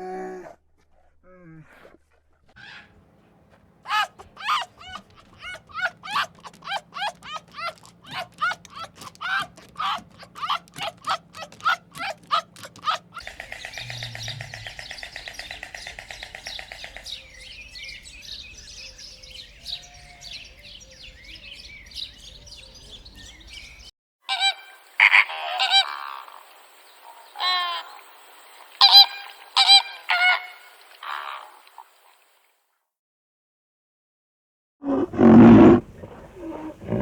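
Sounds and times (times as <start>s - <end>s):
faint chirps: 2.6s - 23.9s
harsh honking bird calls: 2.6s - 26.3s, 28.8s - 31.6s.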